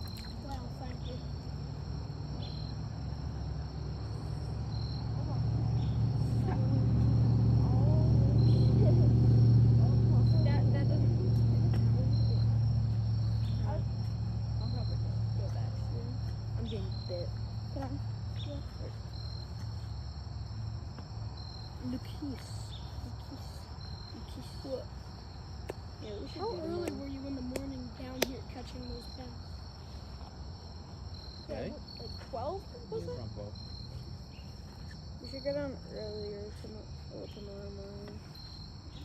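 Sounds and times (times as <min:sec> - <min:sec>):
low hum: 0:00.0 - 0:20.8
crickets chirring: 0:00.0 - 0:39.0
insects trilling: 0:00.0 - 0:39.0.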